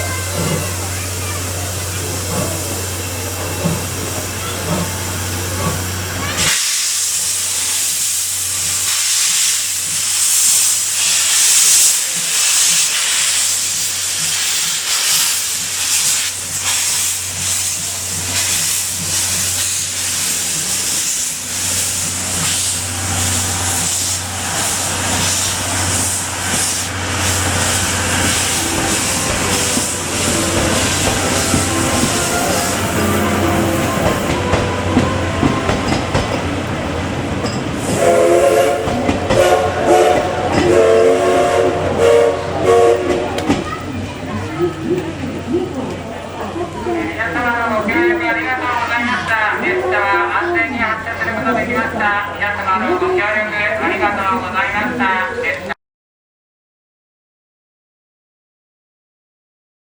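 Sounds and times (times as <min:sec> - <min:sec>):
loud steam hiss: 0:00.0 - 0:44.1.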